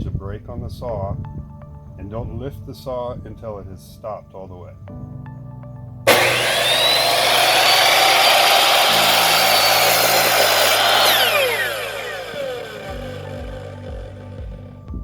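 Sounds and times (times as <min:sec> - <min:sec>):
saw blade winding down: 0:06.1 - 0:14.6
miter saw cutting board: 0:06.1 - 0:14.7.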